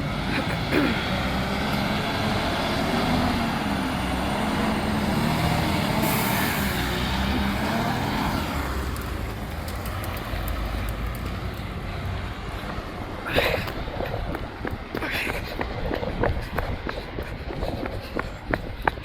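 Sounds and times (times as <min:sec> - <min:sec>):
truck engine running: 0:00.0 - 0:19.0
air hiss: 0:06.0 - 0:07.0.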